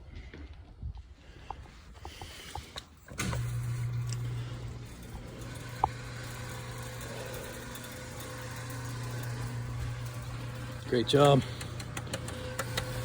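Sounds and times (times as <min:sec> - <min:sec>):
engine idling: 0:03.2 - 0:13.0.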